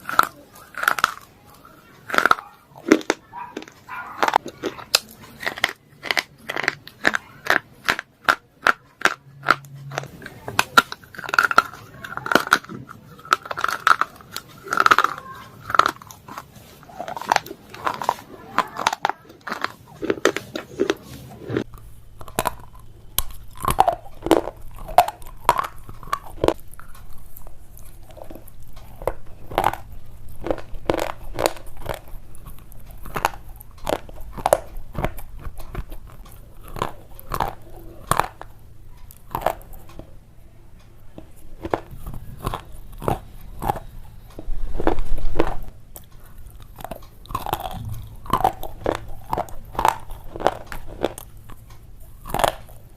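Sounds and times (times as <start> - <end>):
slate pencil crunching: 0.0 - 40.0, 41.3 - 52.9
soft chewing: 0.0 - 52.9.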